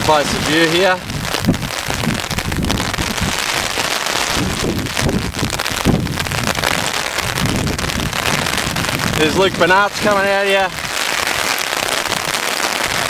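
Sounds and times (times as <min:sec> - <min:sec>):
hail pelting down: 0:00.0 - 0:13.0.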